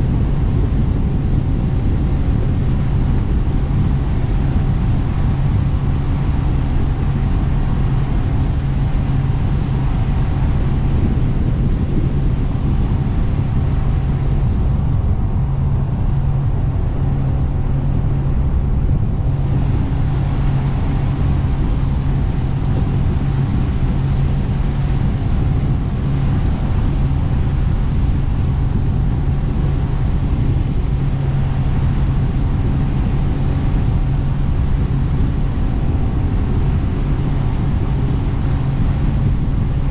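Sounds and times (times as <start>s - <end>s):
jet boat engine drone: 0.0s - 39.9s
wind: 0.0s - 39.9s.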